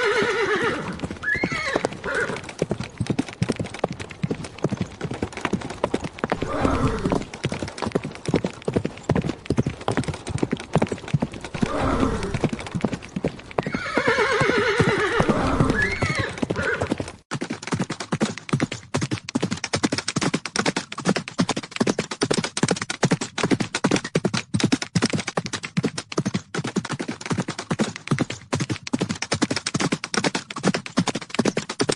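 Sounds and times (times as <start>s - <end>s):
horses neighing: 0.0s - 3.0s, 3.9s - 7.7s, 10.5s - 17.1s
hoofbeats galloping: 0.0s - 31.9s.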